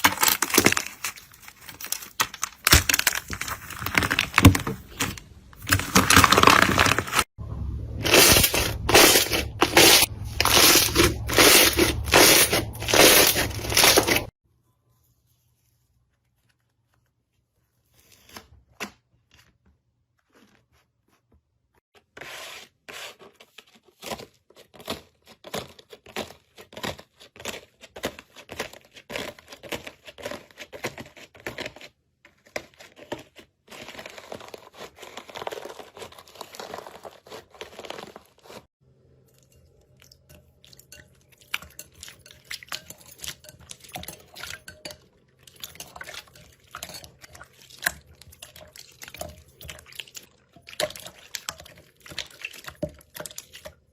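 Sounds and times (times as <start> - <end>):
slime squishing and crackling: 0.0 - 7.3, 7.9 - 14.3, 32.3 - 38.7, 45.2 - 53.9.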